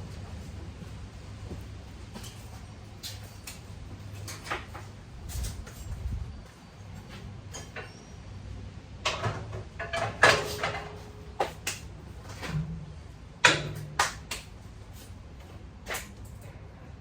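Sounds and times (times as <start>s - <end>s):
low steady hum: 0.0s - 17.0s
sharp knocks and clunks: 13.4s - 14.5s.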